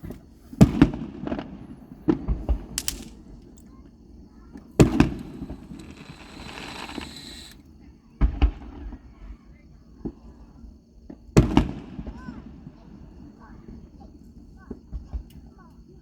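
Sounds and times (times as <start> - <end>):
firework hissing: 4.8 - 7.6
fireworks booming and popping: 4.8 - 7.6.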